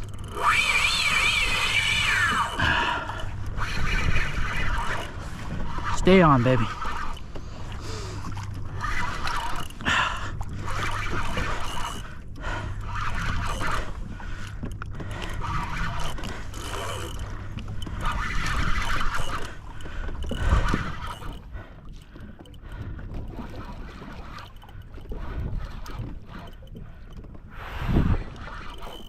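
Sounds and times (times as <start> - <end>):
water sloshing: 0.0 - 29.0.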